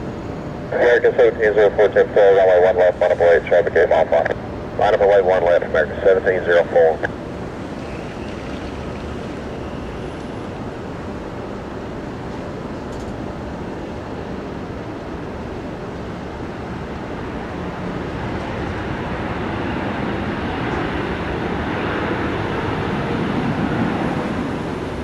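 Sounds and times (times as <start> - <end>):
jet engine rumble: 0.0 - 25.0.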